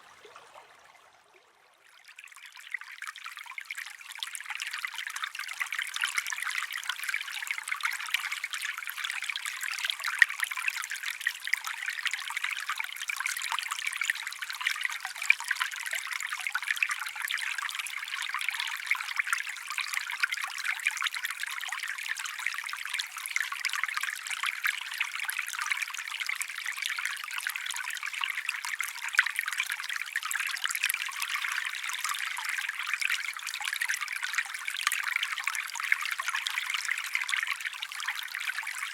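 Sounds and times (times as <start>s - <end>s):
stream trickling: 0.0s - 38.9s.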